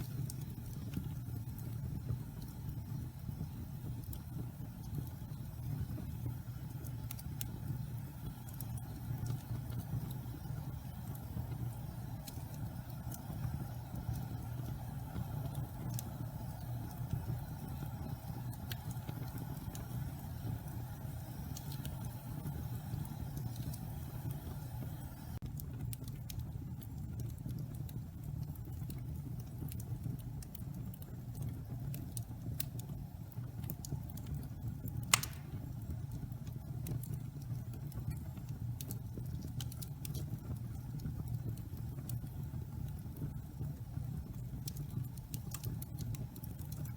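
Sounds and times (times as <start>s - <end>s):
fire crackling: 0.0s - 46.9s
loud pop from fire: 35.1s - 35.8s.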